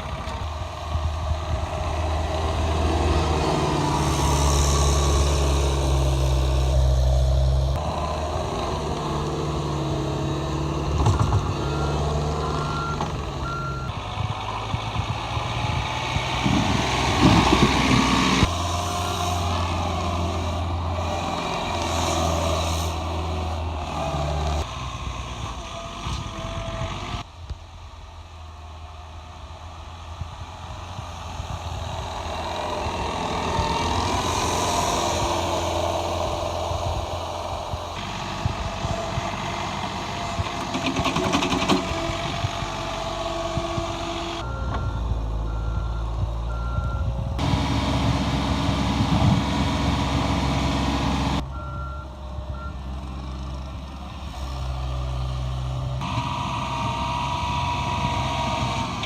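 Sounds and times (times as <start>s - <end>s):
diesel loader engines working: 0.0s - 59.0s
reversing alarm beeping: 11.3s - 14.0s, 44.4s - 47.2s, 51.5s - 52.8s.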